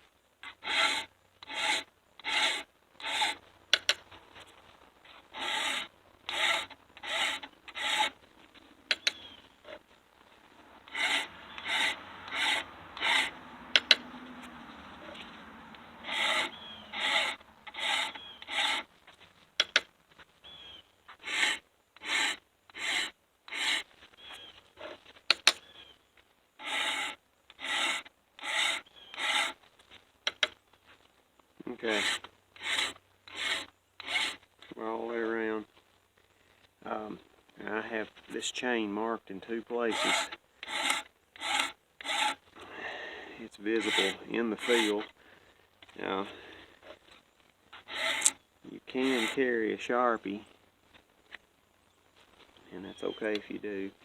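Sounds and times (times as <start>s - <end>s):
hand file scraping metal chain: 0.4s - 4.0s, 5.3s - 8.2s, 10.8s - 14.0s, 16.0s - 18.9s, 21.1s - 23.8s, 26.6s - 29.6s, 31.8s - 34.4s, 39.8s - 42.4s, 43.5s - 45.1s, 47.8s - 48.4s, 49.0s - 49.4s.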